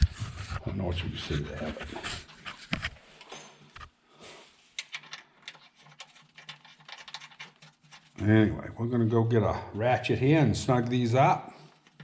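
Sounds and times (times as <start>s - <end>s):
metal parts clicking and tapping: 4.8s - 8.2s.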